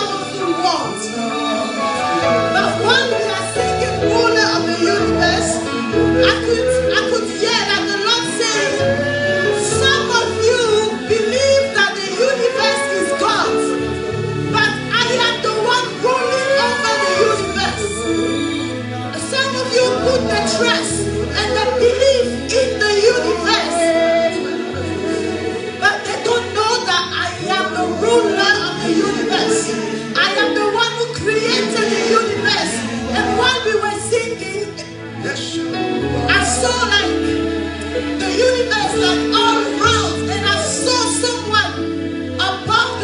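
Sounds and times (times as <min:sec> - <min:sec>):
band playing worship music: 0:00.0 - 0:43.0
keyboard chords and bass: 0:00.0 - 0:43.0
person singing: 0:23.1 - 0:25.8.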